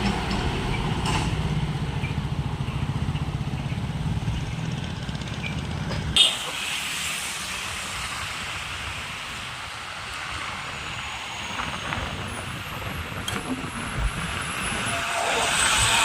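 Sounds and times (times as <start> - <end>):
road traffic rushing: 0.0 - 16.0
wind on microphone: 8.4 - 16.0.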